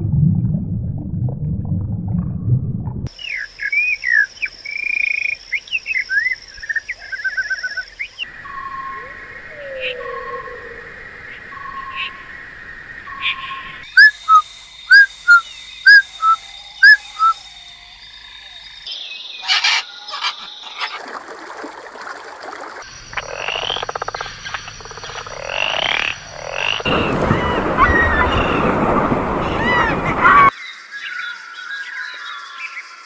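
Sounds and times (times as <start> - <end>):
frogs calling: 3.1 - 21.0, 22.8 - 30.5
chorus of overlapping frog calls: 22.8 - 30.5.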